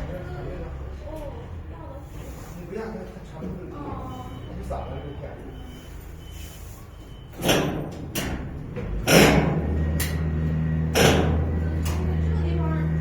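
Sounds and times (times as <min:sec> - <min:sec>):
heavy knocks and bangs: 0:07.4 - 0:12.2
steady low hum: 0:08.1 - 0:13.0.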